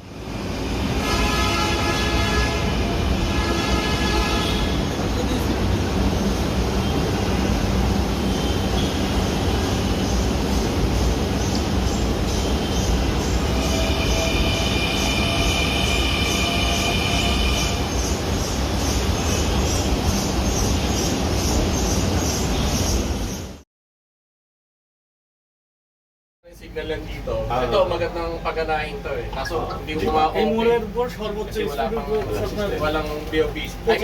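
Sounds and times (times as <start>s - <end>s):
metro train rumbling on rails: 0.0s - 23.6s
high wheel squeal: 12.4s - 19.6s.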